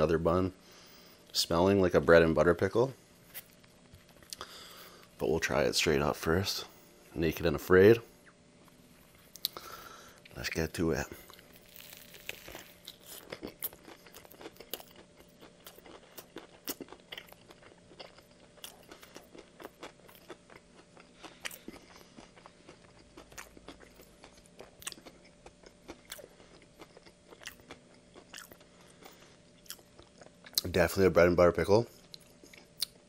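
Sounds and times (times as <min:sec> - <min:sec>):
crunchy chewing: 0:08.7 - 0:30.8
biting into a sandwich: 0:11.2 - 0:30.7.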